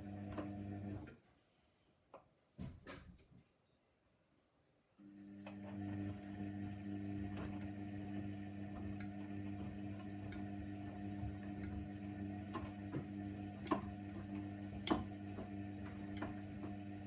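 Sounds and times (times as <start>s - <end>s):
washing machine motor humming: 0.0s - 1.1s, 5.0s - 17.0s.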